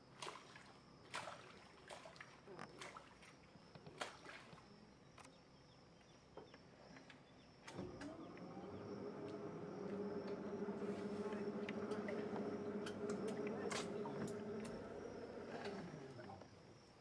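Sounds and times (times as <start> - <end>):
electric boat motor whining: 7.7 - 16.6
faint scattered clicks: 9.2 - 16.6.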